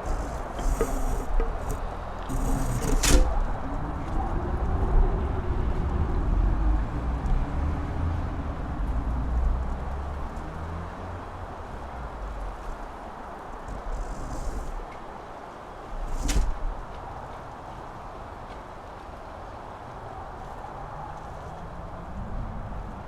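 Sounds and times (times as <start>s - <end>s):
strong wind buffeting microphone: 0.0s - 9.8s.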